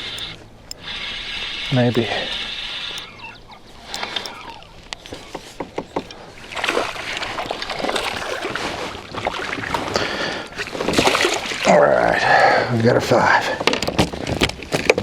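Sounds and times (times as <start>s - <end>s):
water splashing around kayak: 0.0s - 12.7s.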